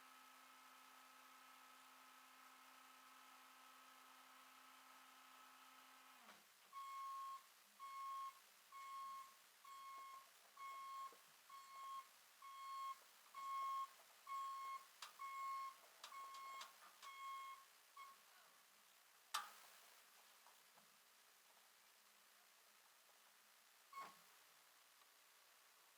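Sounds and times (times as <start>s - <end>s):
electronic warning beep: 6.8s - 18.2s.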